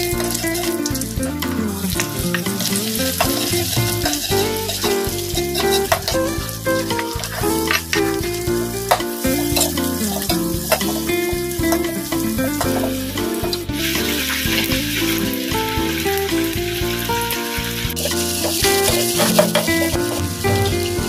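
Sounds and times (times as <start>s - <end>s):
background music: 0.0s - 21.0s
food sizzling in hot oil: 0.0s - 21.0s
metal spatula scraping a pan: 0.2s - 12.9s, 18.0s - 21.0s.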